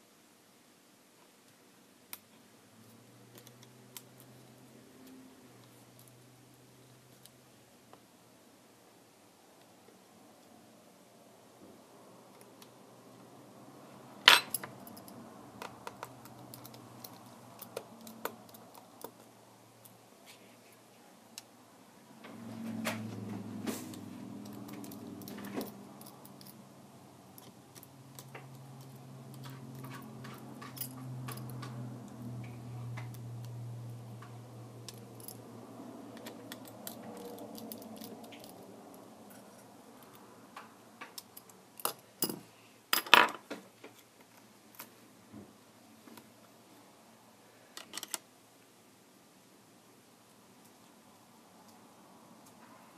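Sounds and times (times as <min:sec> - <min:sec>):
small tools clicking and tapping: 0:02.1 - 0:06.2, 0:14.3 - 0:20.0, 0:22.3 - 0:26.6, 0:27.3 - 0:35.4, 0:36.1 - 0:38.6, 0:39.3 - 0:42.4, 0:47.8 - 0:48.2.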